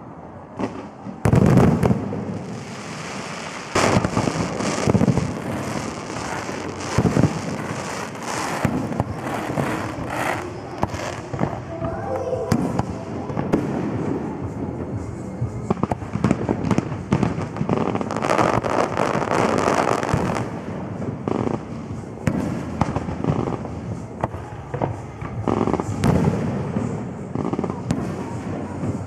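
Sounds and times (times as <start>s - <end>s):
fireworks crackling: 0.0s - 29.0s.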